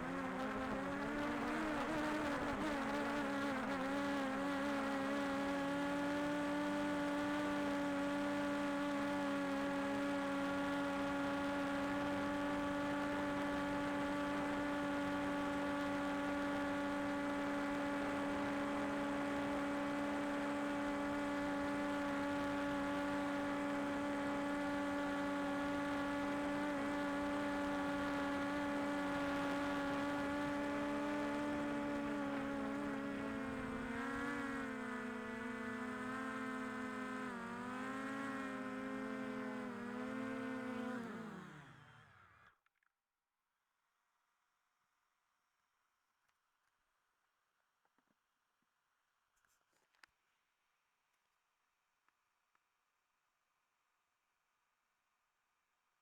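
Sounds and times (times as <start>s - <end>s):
drone propellers whirring: 39.3s - 42.4s.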